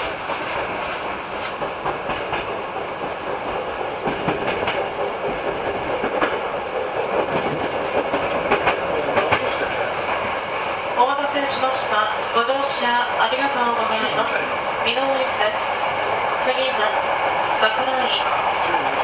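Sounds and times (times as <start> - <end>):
wheels clacking over rail joints: 0.0 - 11.2
train rolling noise: 0.0 - 19.0.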